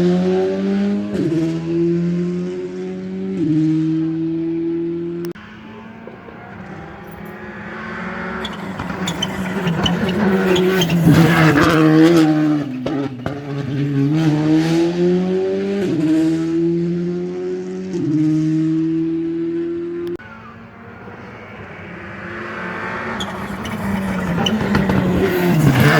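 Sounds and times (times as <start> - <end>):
rally car engine: 0.0 - 25.9
engine crackles: 4.9 - 14.9, 20.0 - 25.9
tyre noise: 5.3 - 14.6, 20.2 - 25.9.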